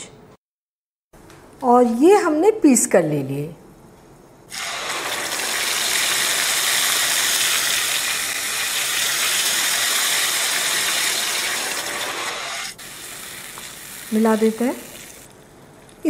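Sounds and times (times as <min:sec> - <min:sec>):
puree sizzling in hot oil: 0:04.5 - 0:15.4.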